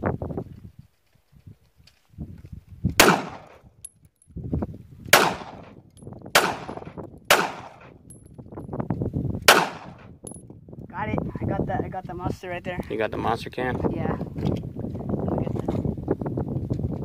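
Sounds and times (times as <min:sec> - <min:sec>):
gunshots with ringing tail: 0:03.0 - 0:03.6, 0:05.1 - 0:05.8, 0:06.4 - 0:08.0, 0:09.5 - 0:10.1.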